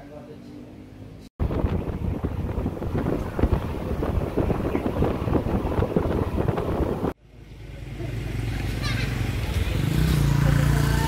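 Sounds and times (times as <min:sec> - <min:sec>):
wind buffeting microphone: 0:01.4 - 0:07.2.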